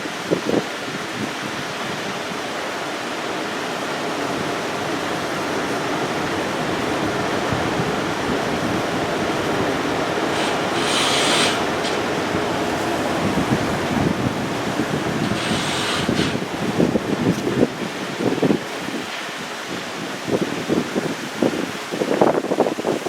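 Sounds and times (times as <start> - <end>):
wind rushing over microphone: 0.0 - 23.0
short sharp hiss: 10.3 - 12.8, 15.2 - 16.4.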